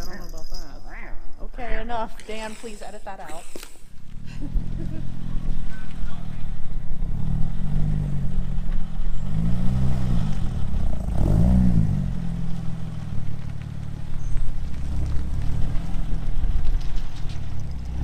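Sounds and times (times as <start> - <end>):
engine idling and revving: 3.9 - 18.0.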